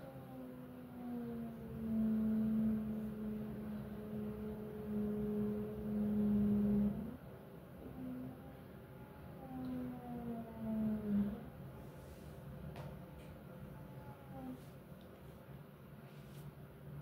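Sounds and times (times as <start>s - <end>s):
low drone tone: 0.0s - 7.2s.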